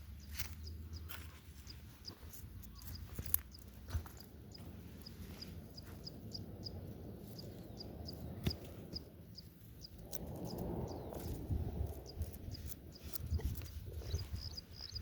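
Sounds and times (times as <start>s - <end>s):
low rumble: 4.4s - 15.0s.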